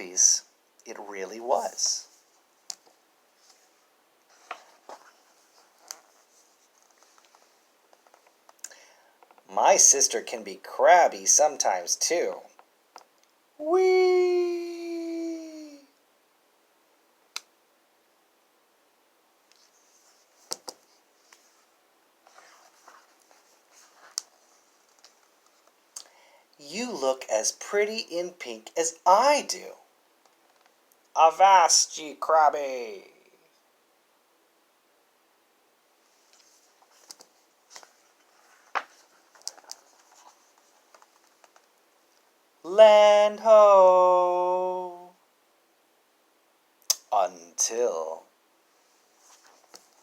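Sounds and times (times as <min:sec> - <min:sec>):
paper rustling: 0:02.2 - 0:08.4, 0:19.6 - 0:25.8, 0:36.2 - 0:41.7.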